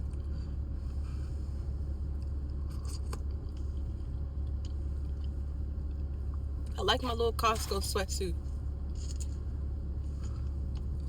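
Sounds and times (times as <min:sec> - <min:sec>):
low rumble inside car: 0:00.0 - 0:11.0
faint chewing clicks: 0:02.2 - 0:06.4.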